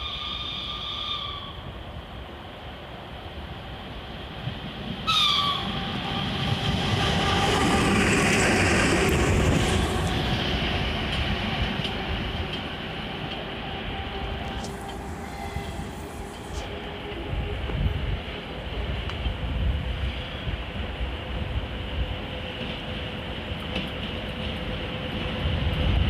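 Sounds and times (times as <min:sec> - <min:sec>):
locomotive rail noise: 0:00.0 - 0:26.0
steady whine: 0:13.3 - 0:18.0.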